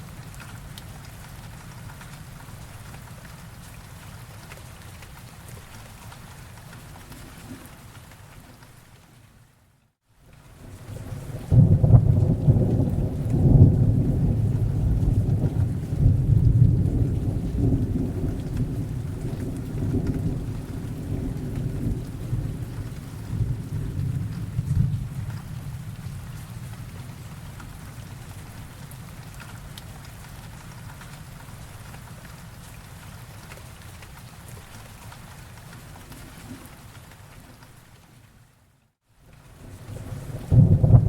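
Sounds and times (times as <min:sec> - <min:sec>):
rain falling: 0:00.0 - 0:41.0
rolling thunder: 0:10.8 - 0:27.8, 0:39.7 - 0:41.0.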